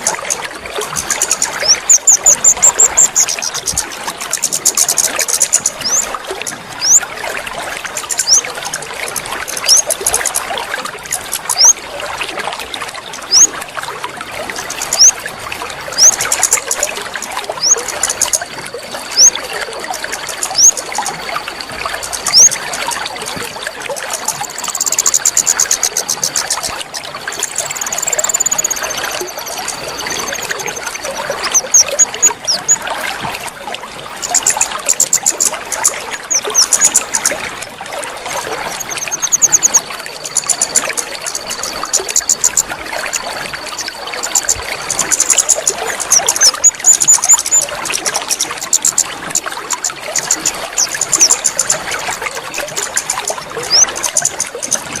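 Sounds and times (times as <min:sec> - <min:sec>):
water trickling: 0:00.0 - 0:55.0
bird chirping: 0:01.0 - 0:06.1, 0:06.8 - 0:07.0, 0:08.0 - 0:08.5, 0:09.6 - 0:10.2, 0:14.8 - 0:15.1, 0:16.0 - 0:16.7, 0:17.6 - 0:18.4, 0:20.5 - 0:20.8, 0:27.4 - 0:32.8.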